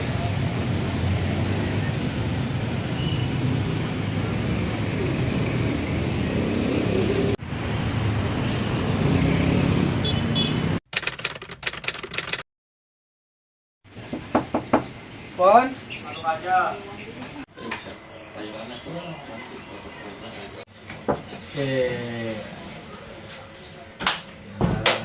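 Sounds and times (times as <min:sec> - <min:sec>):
rapid clicks: 0:10.9 - 0:12.4.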